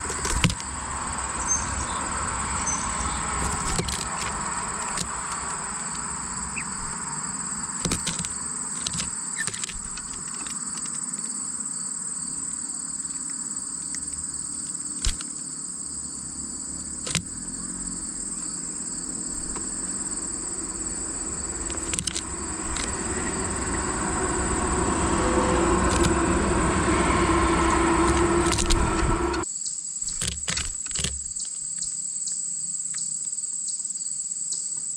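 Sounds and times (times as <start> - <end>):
low rumble: 0.0 - 8.8, 16.2 - 29.4
high insect trill: 0.0 - 34.9
sharp clicks: 3.4 - 6.0, 15.0 - 15.4, 21.3 - 23.8.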